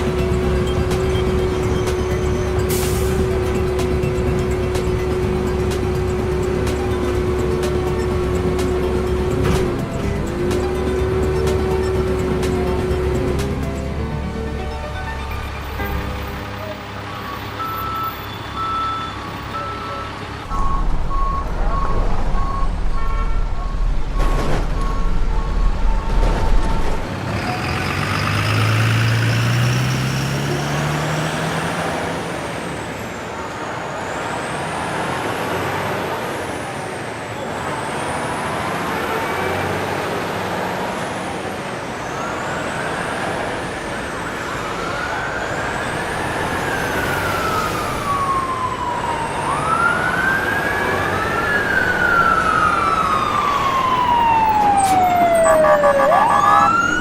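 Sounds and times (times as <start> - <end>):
traffic hum: 0.0 - 57.0
vehicle engine revving: 20.5 - 32.9
siren wailing: 42.2 - 57.0.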